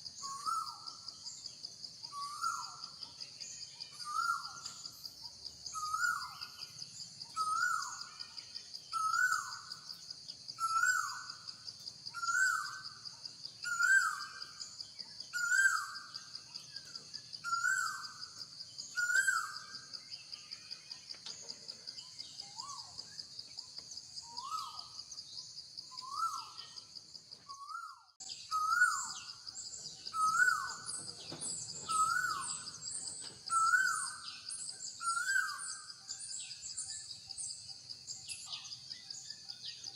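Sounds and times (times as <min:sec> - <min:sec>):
bird calling: 0:27.5 - 0:29.4, 0:30.0 - 0:36.6.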